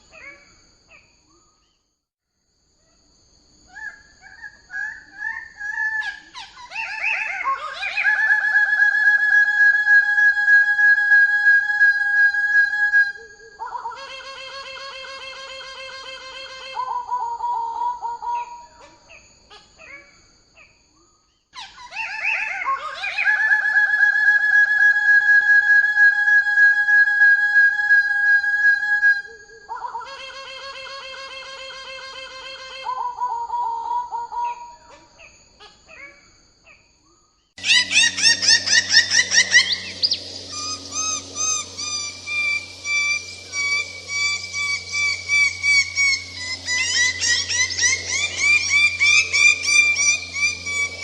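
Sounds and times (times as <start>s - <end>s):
bird trilling calls: 3.7s - 8.8s, 37.6s - 51.0s
low steady hum: 37.6s - 51.0s.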